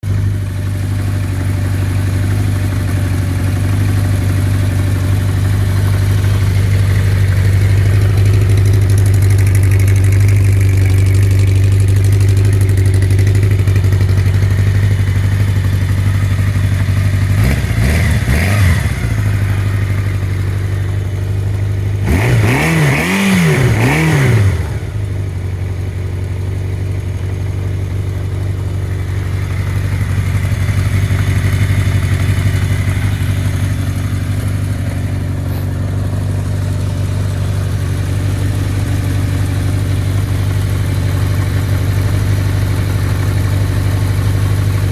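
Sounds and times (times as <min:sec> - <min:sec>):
motorcycle engine idling and revving: 0:00.0 - 0:44.9.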